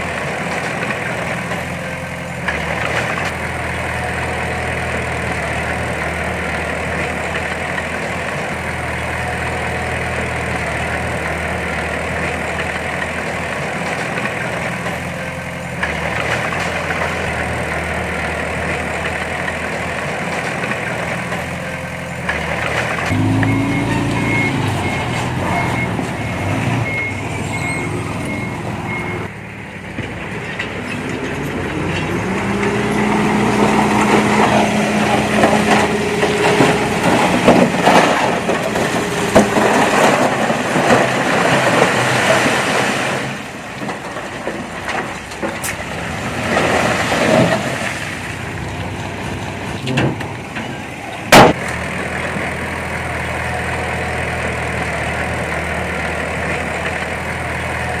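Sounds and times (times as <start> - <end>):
diesel engine revving: 0.0 - 58.0
rough rumbling noise: 22.3 - 52.9
reversing alarm beeping: 23.1 - 29.3.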